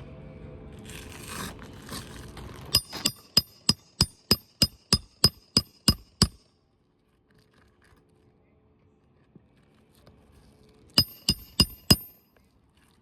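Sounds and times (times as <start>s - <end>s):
hammer striking nail: 2.7s - 6.4s, 11.0s - 12.3s.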